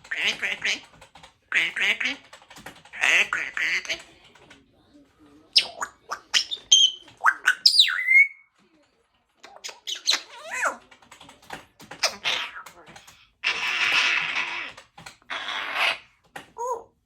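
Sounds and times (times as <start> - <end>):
parrot clicks and whistles: 5.6 - 8.5.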